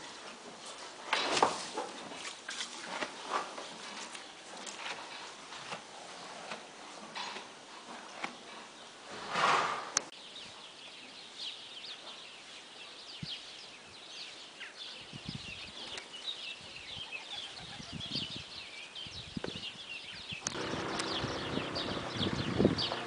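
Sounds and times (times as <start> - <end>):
small birds chirping: 10.1 - 23.0.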